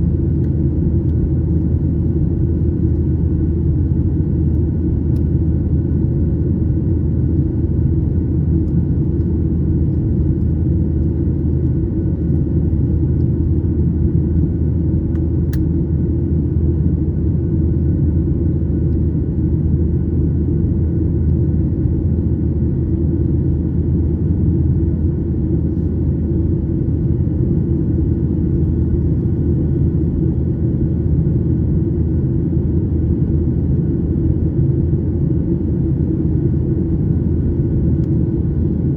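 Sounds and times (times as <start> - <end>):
airliner engine and airflow rumble: 0.0 - 38.9
small click: 4.5 - 5.3, 15.1 - 15.7.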